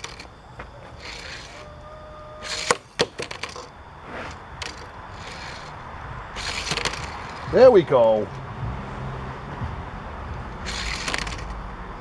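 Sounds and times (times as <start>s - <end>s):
toy cars clicking and clacking: 0.0s - 8.5s, 9.1s - 12.0s.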